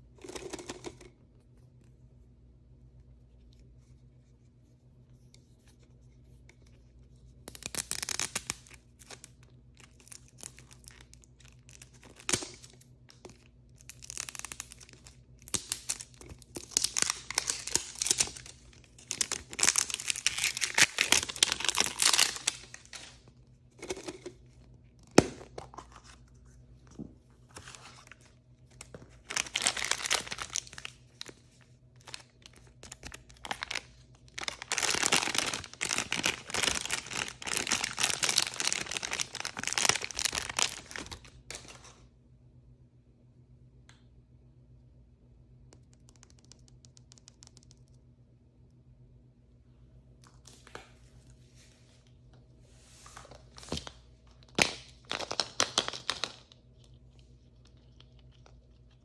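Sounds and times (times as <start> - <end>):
packaging tearing and crinkling: 7.5 - 23.2, 28.8 - 31.4, 32.0 - 41.8, 54.5 - 56.5.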